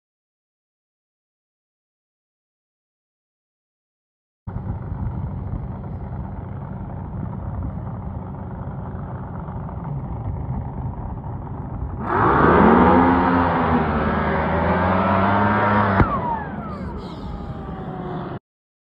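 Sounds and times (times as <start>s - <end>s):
engine idling: 4.5s - 18.4s.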